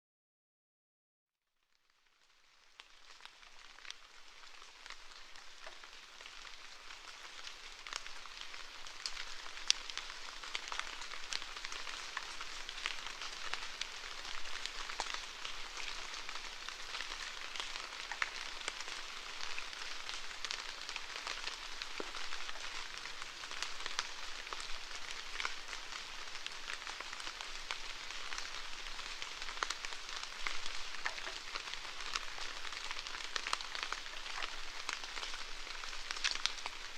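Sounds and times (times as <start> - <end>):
steady rainfall: 2.0 - 36.9.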